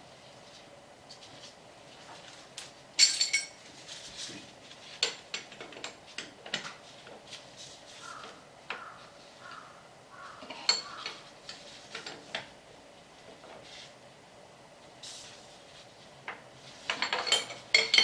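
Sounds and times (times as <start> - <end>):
metal tools clinking: 3.0 - 3.6, 16.9 - 18.0.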